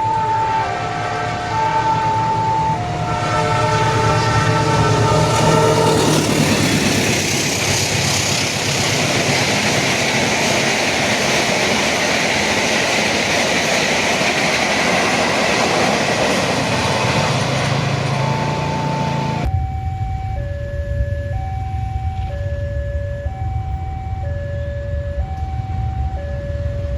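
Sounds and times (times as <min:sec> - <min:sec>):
train passing at speed: 0:00.0 - 0:26.9.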